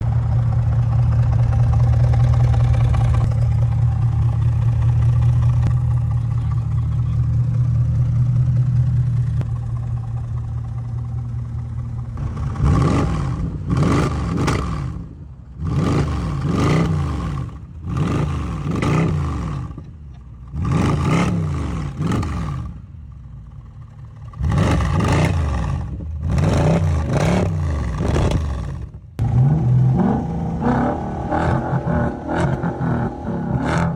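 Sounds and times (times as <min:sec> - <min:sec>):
car engine droning: 0:00.0 - 0:33.9
sharp engine throttle revs: 0:12.2 - 0:19.8, 0:20.5 - 0:22.8, 0:24.3 - 0:33.9.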